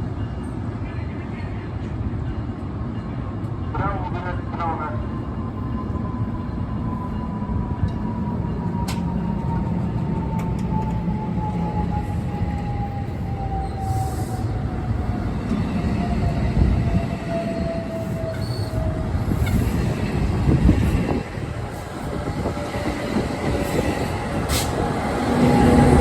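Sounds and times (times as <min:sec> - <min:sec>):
train wheels rumbling on rail: 0:05.3 - 0:26.0.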